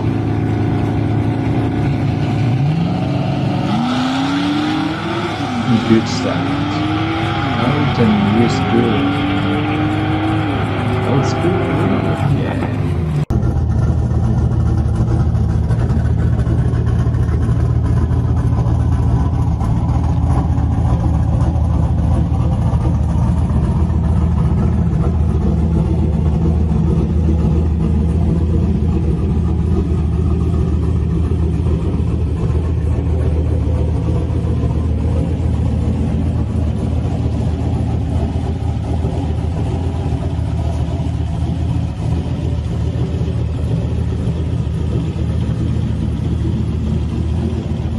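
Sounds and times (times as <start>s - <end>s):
muscle car engine rumbling: 0.0s - 47.9s.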